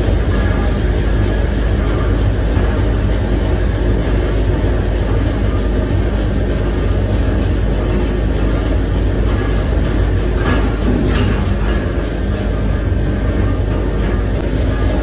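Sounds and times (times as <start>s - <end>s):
heavy industrial machinery rumbling: 0.0s - 15.0s.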